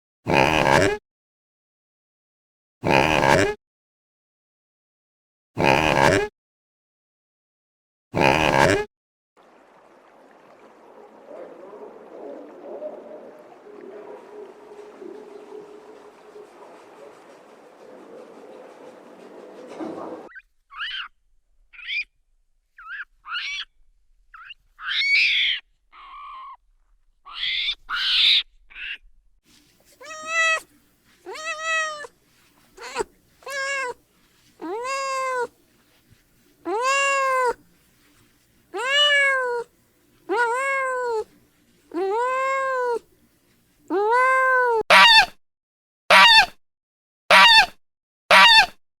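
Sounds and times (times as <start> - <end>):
high squeaky calls: 20.2 - 21.1, 21.7 - 22.1, 22.8 - 23.7, 24.4 - 26.6, 32.8 - 34.0, 47.3 - 47.7, 48.3 - 48.7
cat meowing: 30.0 - 30.6, 31.3 - 32.1, 32.8 - 34.0, 34.6 - 35.5, 36.7 - 37.6, 38.8 - 39.7, 40.3 - 41.3, 41.9 - 43.0, 43.9 - 45.3.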